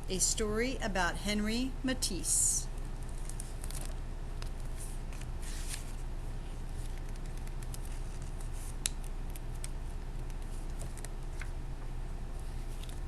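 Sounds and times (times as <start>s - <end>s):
steady low hum: 0.0s - 13.0s
book pages rustling: 3.0s - 11.6s, 12.4s - 13.0s.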